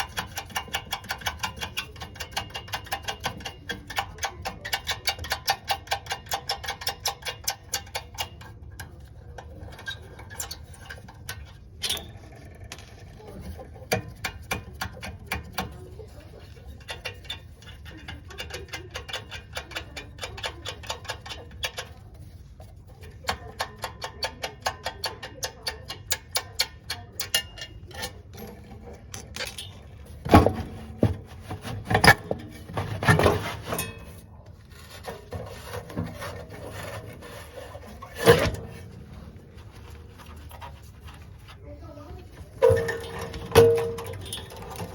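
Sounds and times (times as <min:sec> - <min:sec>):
scraping: 0:27.3 - 0:44.9
metal clunks: 0:42.5 - 0:44.9.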